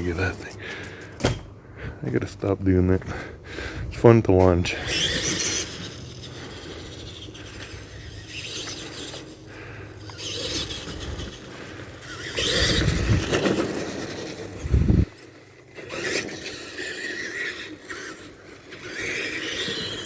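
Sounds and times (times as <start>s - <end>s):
toy truck motor running: 4.6s - 20.0s.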